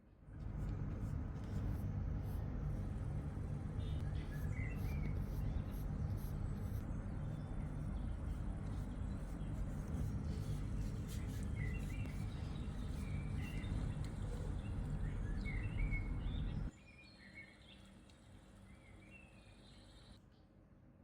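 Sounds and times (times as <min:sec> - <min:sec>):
low background rumble: 0:00.2 - 0:16.7
small birds chirping: 0:03.8 - 0:18.0.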